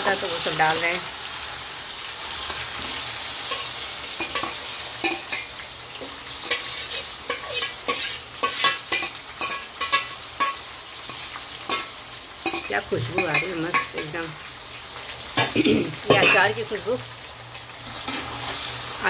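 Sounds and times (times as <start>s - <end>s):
chicken sizzling in hot oil: 0.0s - 19.0s
spoon scraping and clinking a bowl: 6.4s - 11.9s.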